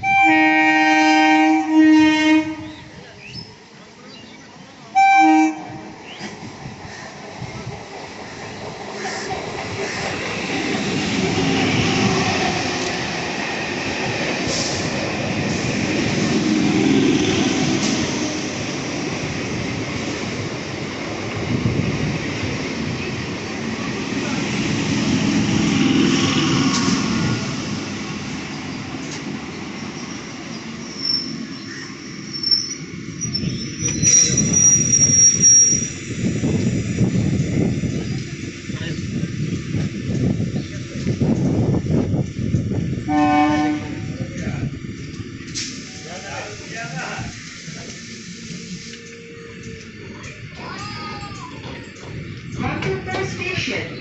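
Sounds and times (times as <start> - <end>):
train wheels rumbling on rails: 0.0 - 54.0
train wheels squealing: 29.8 - 36.0.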